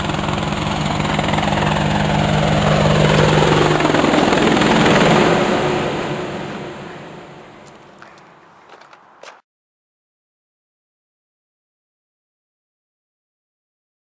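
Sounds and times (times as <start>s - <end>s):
loud engine drone: 0.0s - 8.6s.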